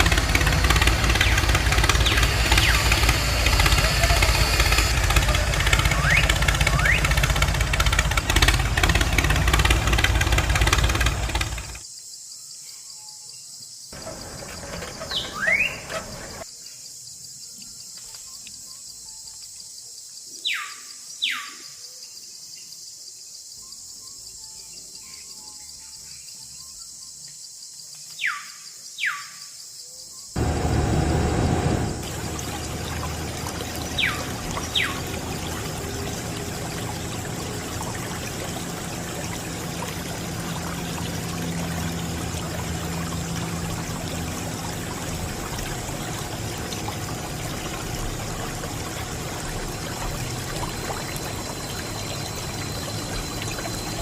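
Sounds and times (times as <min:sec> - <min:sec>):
water pouring: 0:00.0 - 0:11.8, 0:30.4 - 0:54.0
water pump motor hum: 0:00.0 - 0:11.8, 0:14.0 - 0:16.4, 0:30.4 - 0:54.0.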